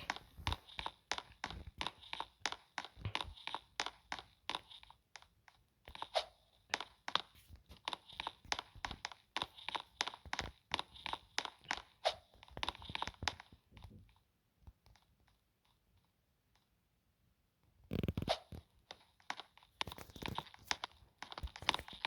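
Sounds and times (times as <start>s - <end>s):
crunching footsteps: 0.0s - 4.8s, 18.3s - 22.0s.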